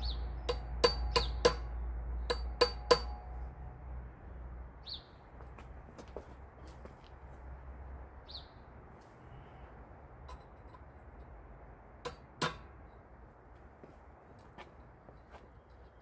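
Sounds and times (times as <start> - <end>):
bird chirp: 0.0 - 1.4, 4.8 - 5.2, 8.2 - 8.7.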